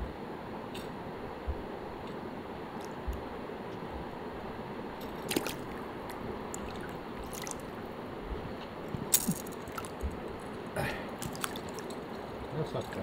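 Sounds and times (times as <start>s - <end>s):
steady background hiss: 0.0s - 13.0s
water drips and splashing: 5.0s - 7.8s, 8.9s - 13.0s.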